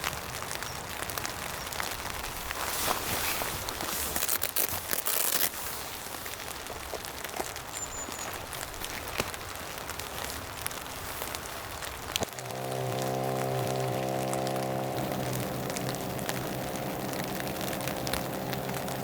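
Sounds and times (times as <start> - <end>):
rain drops ticking: 0.0 - 19.0
steady rain: 0.0 - 19.0
music: 12.4 - 19.0.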